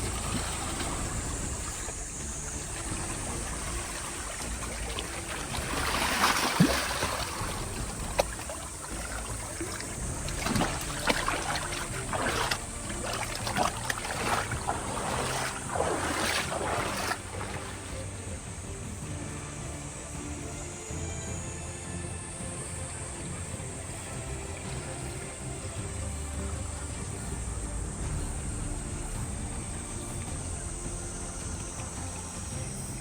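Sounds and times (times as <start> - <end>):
water rushing and splashing: 0.0 - 33.0.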